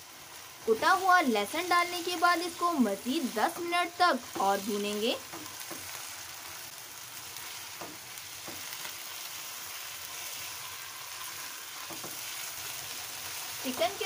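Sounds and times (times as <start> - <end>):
chicken sizzling in hot oil: 0.0 - 14.0
spatula scraping pan: 10.0 - 14.0.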